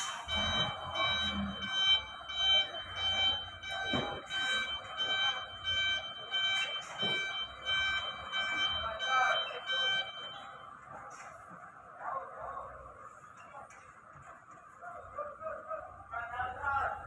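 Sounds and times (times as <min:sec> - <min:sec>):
reversing alarm beeping: 0:00.0 - 0:11.0
truck engine idling: 0:00.0 - 0:11.8.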